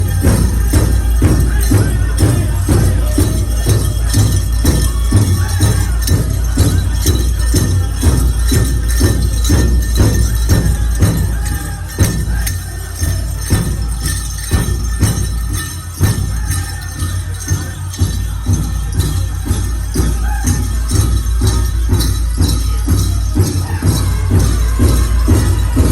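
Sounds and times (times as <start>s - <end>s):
metal jingles shaking: 0.0s - 25.9s
steady drum beat: 0.0s - 25.9s.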